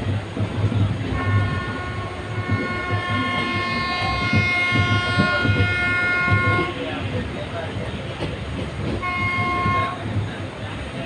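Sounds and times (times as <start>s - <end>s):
train wheels clattering on track: 0.0s - 11.0s
locomotive horn blast: 1.1s - 7.0s, 9.0s - 10.1s.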